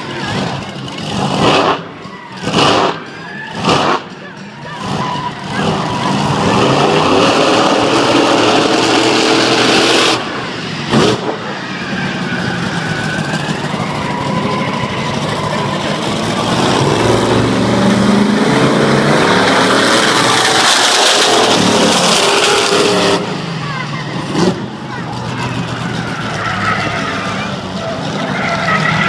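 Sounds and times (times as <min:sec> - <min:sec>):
monster truck engine revving: 0:00.0 - 0:29.0.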